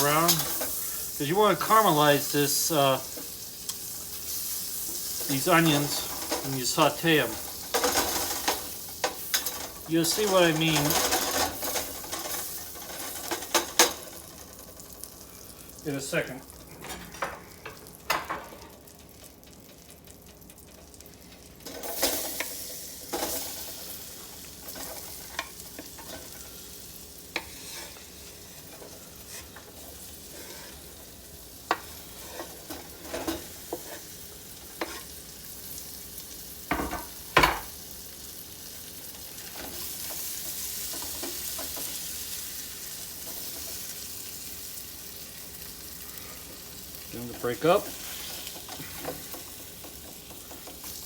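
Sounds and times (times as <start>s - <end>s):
onions sizzling in a pan: 0.0s - 16.7s, 17.3s - 51.0s
utensil scraping against pan: 27.3s - 31.0s, 31.7s - 34.1s.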